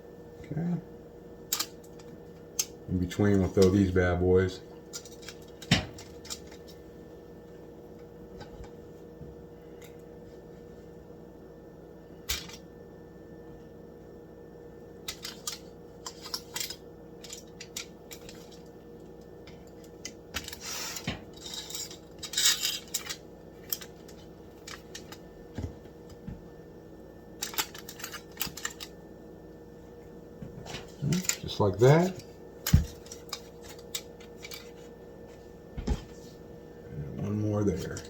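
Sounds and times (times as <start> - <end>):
short hissing rustles: 20.6 - 21.1.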